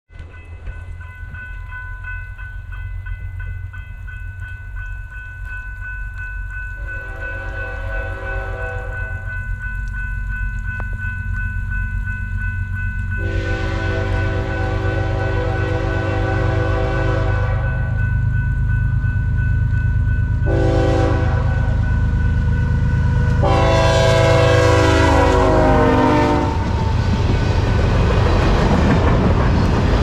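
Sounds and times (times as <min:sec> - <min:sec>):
crossing bell ringing: 0:00.1 - 0:29.9
train rumble: 0:00.1 - 0:30.0
locomotive horn blasts: 0:06.8 - 0:09.2, 0:13.2 - 0:18.0, 0:20.5 - 0:21.9, 0:23.4 - 0:26.7.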